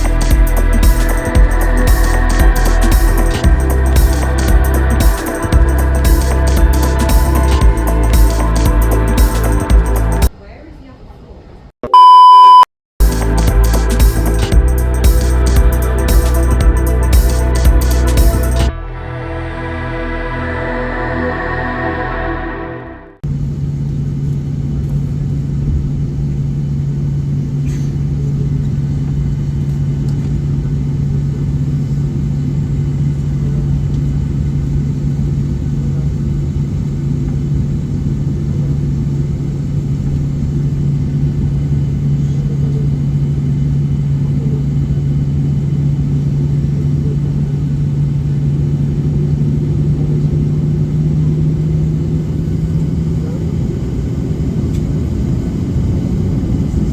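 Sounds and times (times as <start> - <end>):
constant droning hum: 0.0 - 11.1, 23.3 - 56.9
aircraft cabin low rumble: 23.3 - 56.9.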